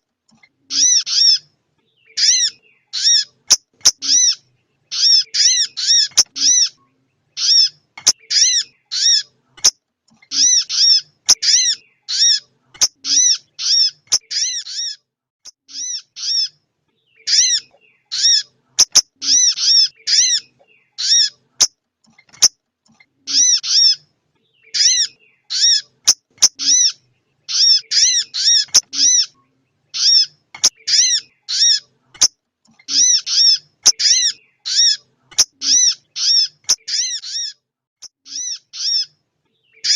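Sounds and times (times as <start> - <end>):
bird whistled calls: 7.4 - 9.3, 23.3 - 31.8.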